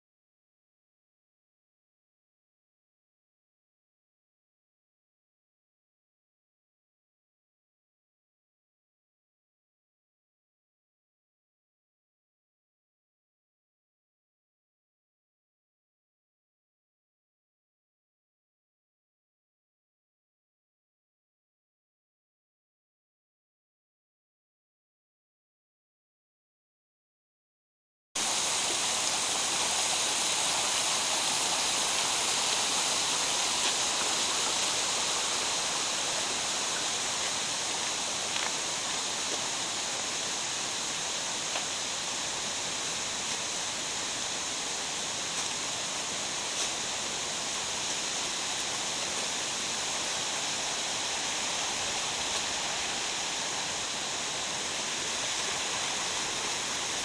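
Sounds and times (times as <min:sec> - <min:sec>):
mountain stream rushing: 0:28.2 - 0:57.0.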